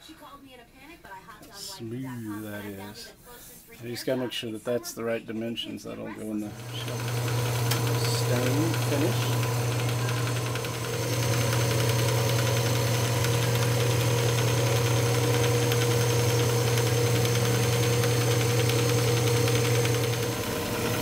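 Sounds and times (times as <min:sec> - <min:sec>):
wood lathe motor hum: 0:06.4 - 0:21.0.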